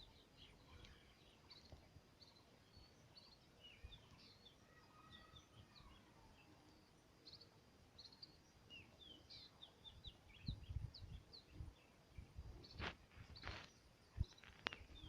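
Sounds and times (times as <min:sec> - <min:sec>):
small birds chirping: 0:00.0 - 0:15.0
brief rustle: 0:12.7 - 0:15.0.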